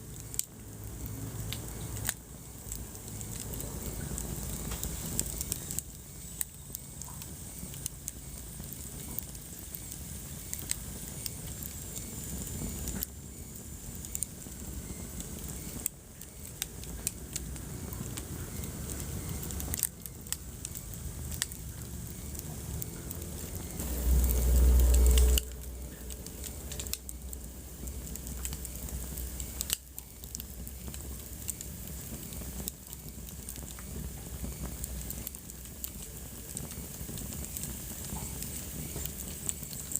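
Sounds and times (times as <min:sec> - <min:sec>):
wood fire crackling: 0:00.0 - 0:39.9
low rumble: 0:20.8 - 0:29.7.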